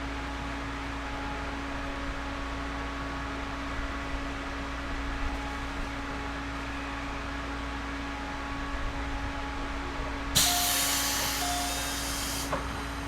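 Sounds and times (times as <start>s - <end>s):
train interior hiss: 10.4s - 13.0s.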